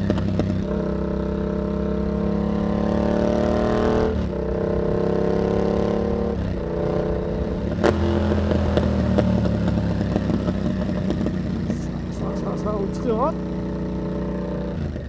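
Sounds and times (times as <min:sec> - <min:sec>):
motorcycle engine running: 0:00.0 - 0:15.0
exhaust crackling ticks: 0:07.9 - 0:13.4.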